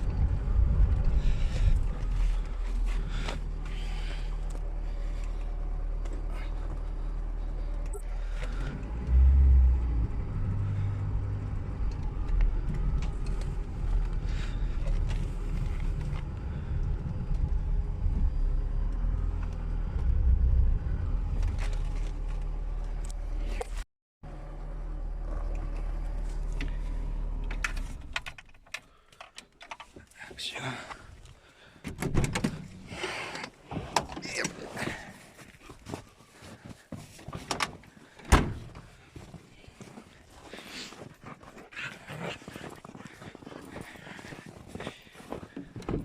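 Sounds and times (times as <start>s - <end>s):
car engine running with low hum: 0.0s - 28.7s.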